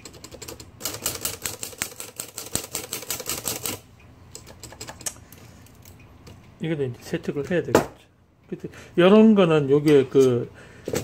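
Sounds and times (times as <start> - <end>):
typewriter clattering: 0.0 - 3.8, 4.4 - 5.1.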